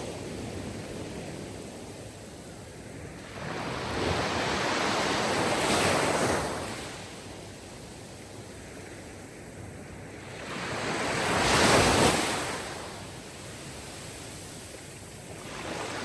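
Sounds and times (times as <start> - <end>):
sea waves breaking on shore: 2.8 - 7.3, 8.5 - 16.0.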